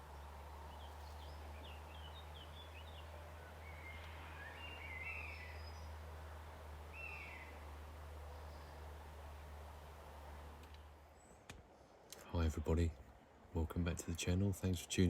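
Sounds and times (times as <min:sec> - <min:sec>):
small birds chirping: 0:00.0 - 0:09.6.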